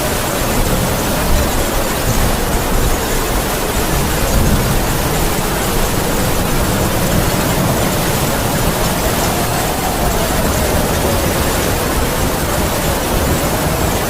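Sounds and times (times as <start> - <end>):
heavy rain falling: 0.0 - 14.0
howling wind: 0.0 - 14.0.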